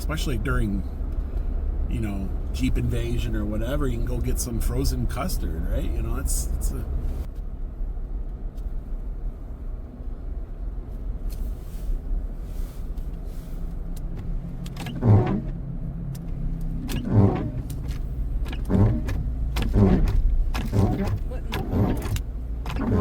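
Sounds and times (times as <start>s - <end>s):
car engine and road hum: 0.0s - 23.0s
windshield wipers scraping ice: 11.4s - 15.6s, 16.7s - 23.0s.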